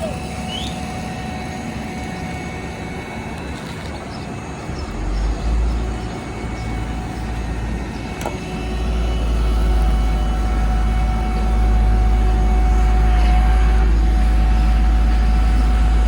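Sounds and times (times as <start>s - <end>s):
diesel machinery droning: 0.0s - 16.0s
click: 8.2s - 8.4s.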